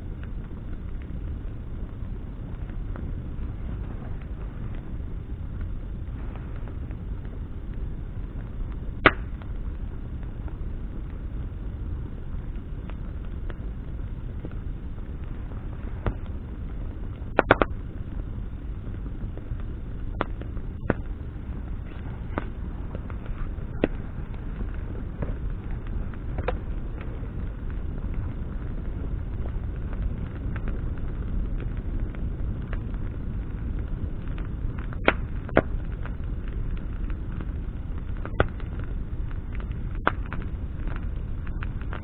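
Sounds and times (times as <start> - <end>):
bonfire burning with low rush: 0.0 - 42.0
crackling pops from burning branches: 0.0 - 42.0.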